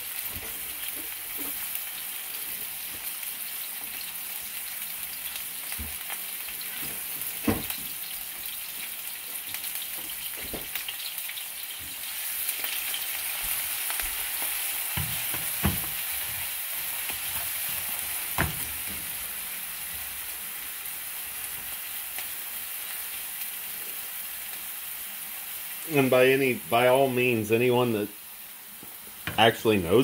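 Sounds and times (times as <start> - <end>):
vegetables sizzling in oil: 0.0 - 30.0.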